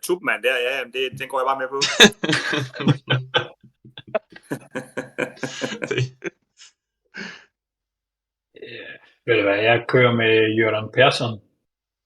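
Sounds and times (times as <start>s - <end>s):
man mumbling: 2.4s - 6.3s.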